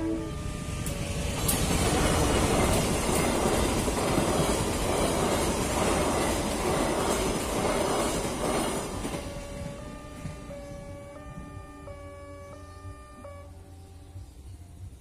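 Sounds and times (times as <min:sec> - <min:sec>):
train rumbling past: 0:00.0 - 0:15.0
wheels clattering over rails: 0:00.7 - 0:11.8.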